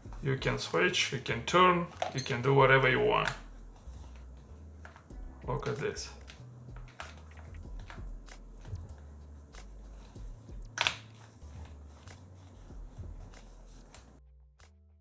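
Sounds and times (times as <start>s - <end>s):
plastic rustles of headphones: 1.5s - 14.2s
steady low hum: 3.4s - 14.2s.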